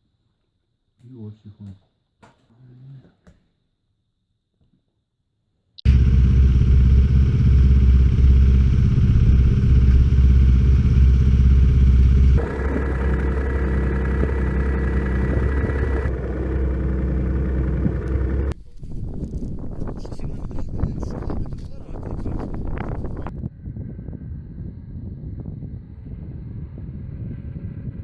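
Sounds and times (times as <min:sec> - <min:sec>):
snowmobile engine running: 0:05.8 - 0:18.6.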